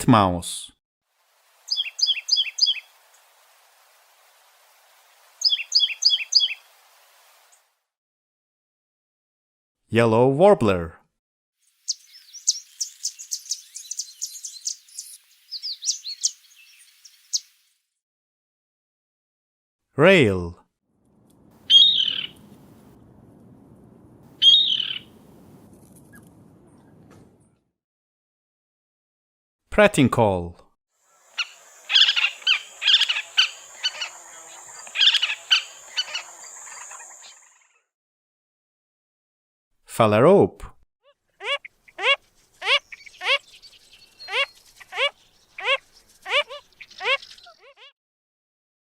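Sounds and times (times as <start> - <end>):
bird chattering calls: 1.7 - 2.8, 5.4 - 6.6, 11.9 - 17.5, 21.7 - 22.4, 24.4 - 25.2, 31.2 - 37.6, 41.4 - 47.8
warbler singing: 1.7 - 2.9, 5.4 - 6.6, 11.8 - 17.6, 21.7 - 22.5, 24.4 - 25.2, 31.2 - 37.6, 42.6 - 47.8.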